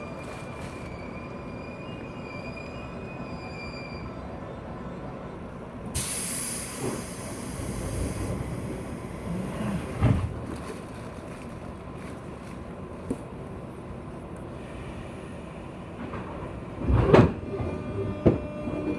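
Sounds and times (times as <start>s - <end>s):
compressed air hissing: 6.0s - 10.0s.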